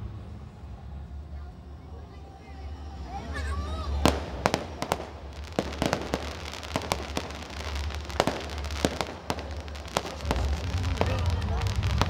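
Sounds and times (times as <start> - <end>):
fireworks bangs and crackles: 3.3 - 12.0.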